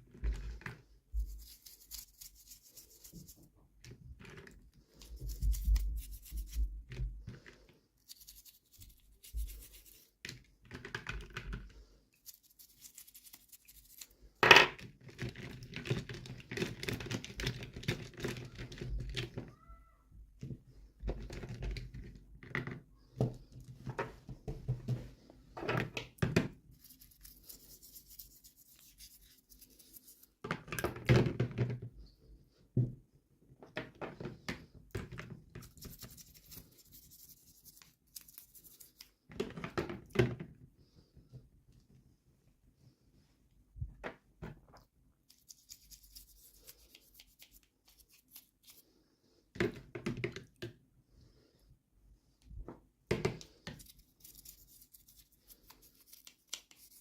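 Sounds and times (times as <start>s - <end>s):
scratching and small knocks: 0.0s - 19.8s, 20.4s - 32.0s, 33.6s - 40.6s.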